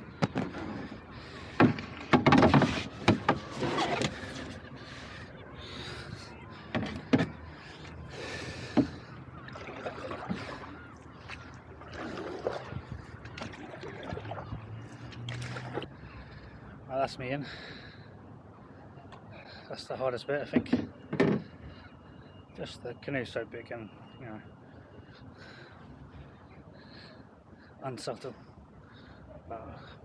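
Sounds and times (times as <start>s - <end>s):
bumps and scrapes: 0.2s - 4.6s.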